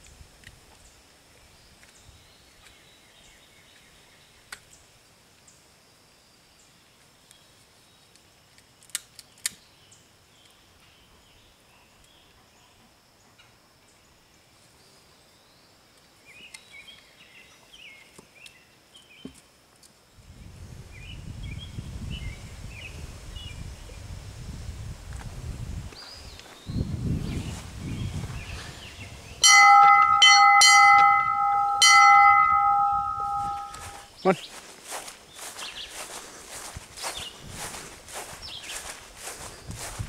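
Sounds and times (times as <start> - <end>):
birds calling: 28.4 - 34.6.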